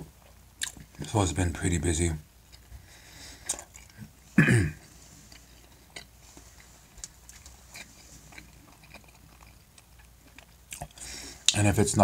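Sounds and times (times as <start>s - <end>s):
mouth chewing food: 0.2s - 1.1s, 3.4s - 4.2s, 4.8s - 11.6s.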